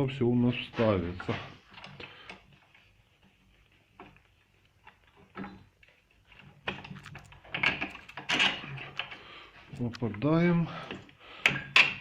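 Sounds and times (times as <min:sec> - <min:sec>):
metal parts clicking and knocking: 0:04.8 - 0:12.0.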